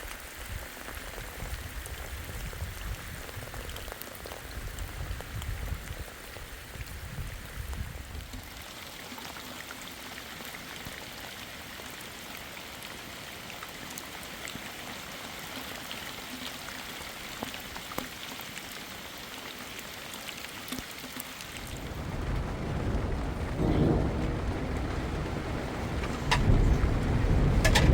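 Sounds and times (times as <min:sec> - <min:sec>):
heavy rain falling: 0:00.0 - 0:27.9
low rumble: 0:21.6 - 0:27.9.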